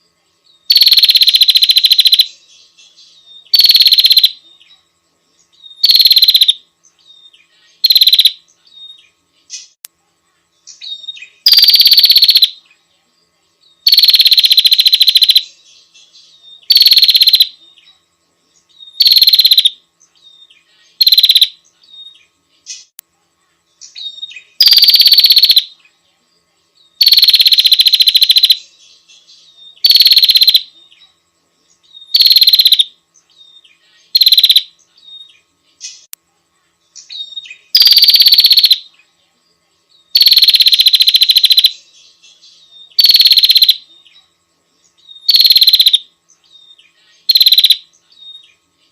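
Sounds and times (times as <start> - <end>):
bird buzzy rattle call: 0.7 - 2.4, 3.5 - 4.4, 5.8 - 6.6, 7.8 - 8.4, 11.0 - 12.6, 13.8 - 15.5, 16.6 - 17.6, 19.0 - 19.8, 21.0 - 21.6, 23.9 - 25.7, 27.0 - 28.7, 29.8 - 30.7, 32.1 - 33.0, 34.1 - 34.7, 37.1 - 38.8, 40.1 - 41.8, 42.9 - 43.8, 45.2 - 46.1, 47.2 - 47.9.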